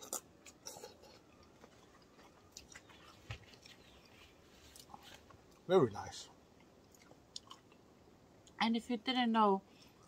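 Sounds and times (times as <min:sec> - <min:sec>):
chewing coconut: 0:00.0 - 0:05.7, 0:06.6 - 0:07.8.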